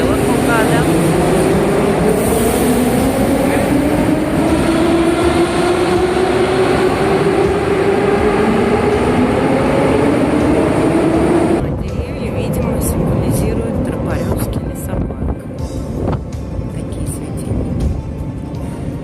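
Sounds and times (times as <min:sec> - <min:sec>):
wheels rumbling on rails: 0:00.0 - 0:19.0.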